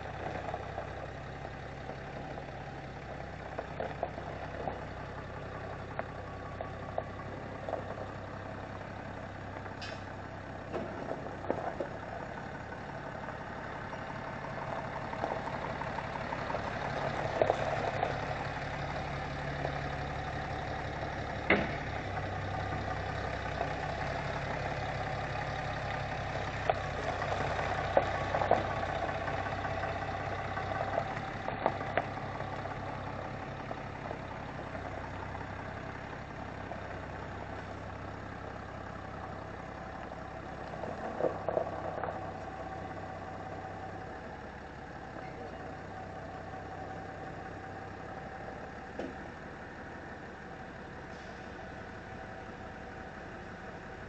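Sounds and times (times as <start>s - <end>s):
sharp knocks: 21.5s - 21.8s.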